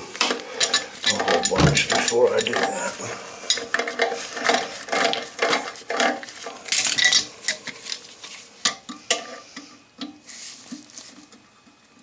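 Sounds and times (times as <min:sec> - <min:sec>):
metal bolt scraping and clinking: 0:00.6 - 0:02.8.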